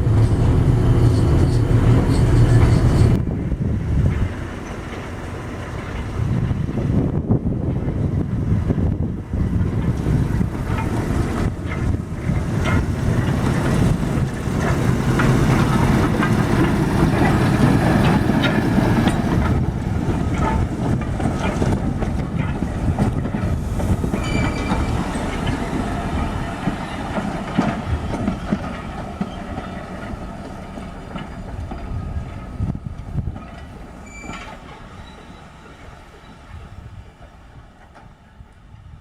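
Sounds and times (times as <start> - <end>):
train rumbling on rails: 0.0 - 39.0
high wheel squeal: 0.2 - 3.2, 23.9 - 27.6, 33.4 - 36.6
wheels clicking over rail joints: 8.9 - 38.6.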